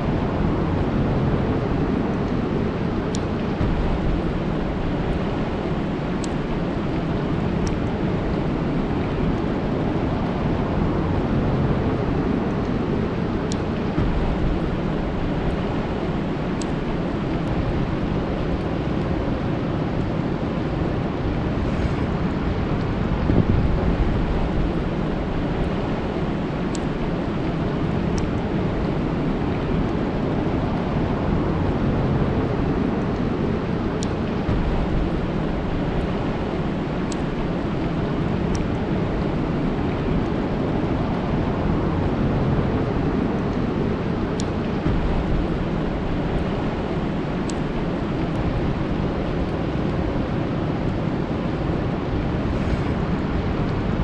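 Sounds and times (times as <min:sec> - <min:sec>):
rain falling on a lake: 0:00.1 - 0:54.0
raindrop ticks: 0:03.1 - 0:10.6, 0:13.4 - 0:19.2, 0:22.8 - 0:30.9, 0:34.0 - 0:41.4, 0:44.3 - 0:50.1.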